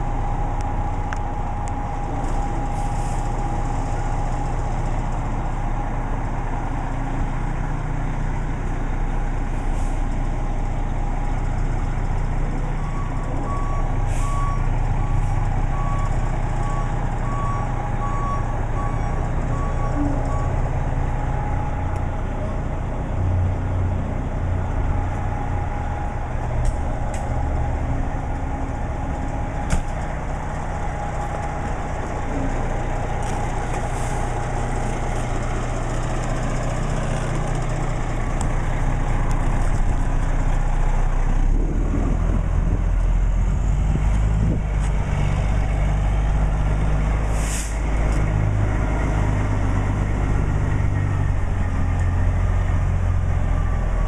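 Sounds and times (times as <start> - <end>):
diesel engine running: 0.0 - 54.0
air brake hiss: 14.1 - 14.3, 47.3 - 47.9.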